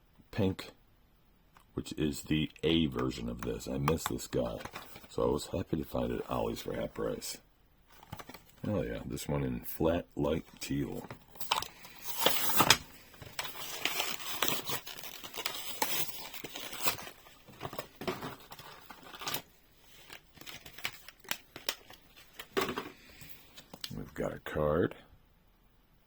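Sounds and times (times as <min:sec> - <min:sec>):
package handling sounds: 0:02.8 - 0:05.4, 0:07.9 - 0:08.8, 0:10.5 - 0:24.2
plastic and cardboard ripping: 0:11.0 - 0:22.7.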